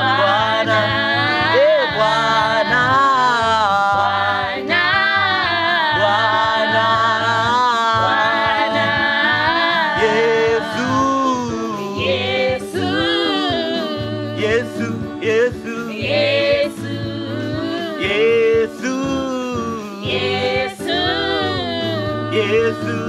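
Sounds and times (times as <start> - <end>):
low instrumental bass accompaniment: 0.0 - 23.0
person singing long wavering notes: 20.9 - 23.0.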